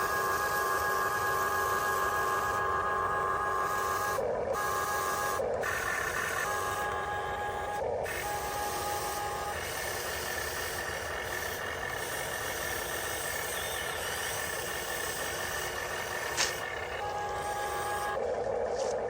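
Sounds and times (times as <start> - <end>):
small electric motors whining: 0.0 - 19.0
sharp click: 16.4 - 16.7.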